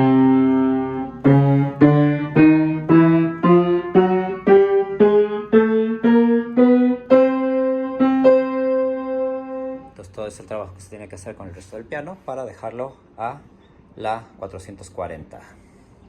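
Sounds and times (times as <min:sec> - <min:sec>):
piano playing octaves: 0:00.0 - 0:10.1.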